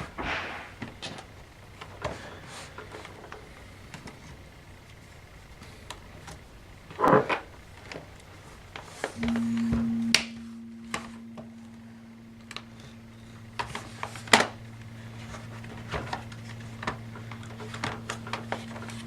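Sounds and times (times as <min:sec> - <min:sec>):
steady low hum: 0:09.2 - 0:19.0.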